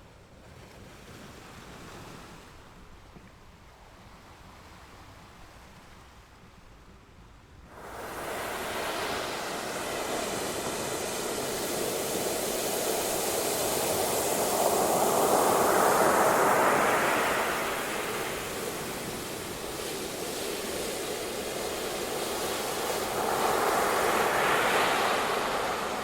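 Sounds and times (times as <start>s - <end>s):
faint hiss: 7.7s - 26.0s
ocean waves breaking: 7.7s - 26.0s.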